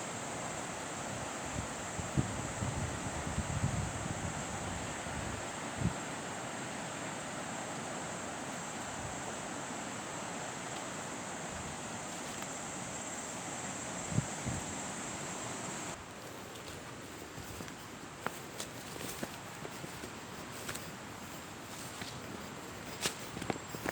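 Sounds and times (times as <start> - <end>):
high hiss: 0.0 - 23.9
wind noise: 1.0 - 6.2, 13.9 - 16.0.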